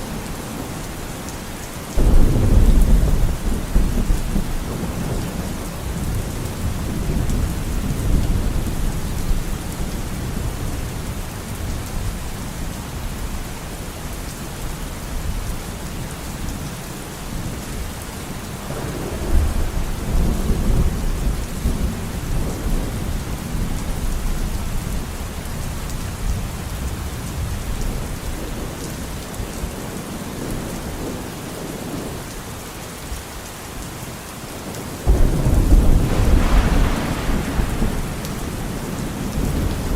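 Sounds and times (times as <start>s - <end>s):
steady rain: 0.0s - 39.9s
rolling thunder: 2.0s - 11.7s, 18.6s - 28.2s, 35.0s - 39.9s.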